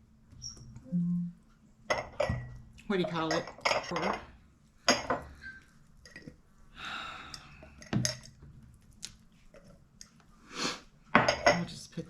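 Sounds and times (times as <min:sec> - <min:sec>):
utensils and dishes clinking: 0:01.9 - 0:04.3, 0:04.9 - 0:06.4, 0:11.2 - 0:11.8.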